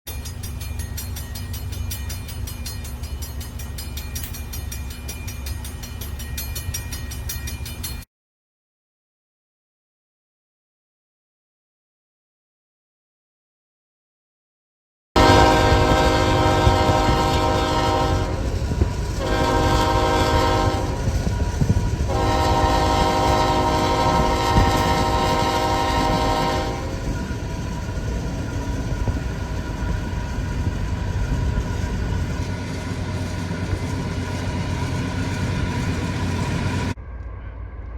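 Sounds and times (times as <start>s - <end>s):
freight train rumbling past: 0.1s - 8.0s, 15.2s - 37.9s
train wheels clicking: 0.1s - 8.1s, 15.2s - 37.4s
locomotive air horn blasts: 15.2s - 27.2s.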